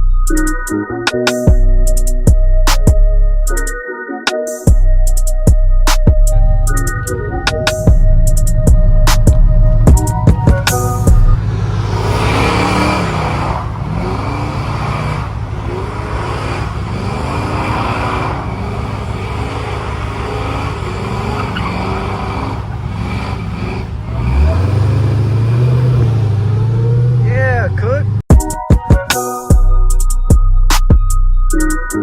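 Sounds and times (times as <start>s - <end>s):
road noise: 5.1s - 28.3s
loud deep hum: 6.1s - 14.4s
car engine accelerating: 6.1s - 28.3s.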